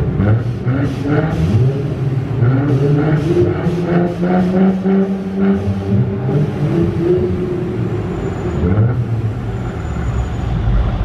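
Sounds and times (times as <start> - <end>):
loud car engine exhaust: 0.0 - 11.0.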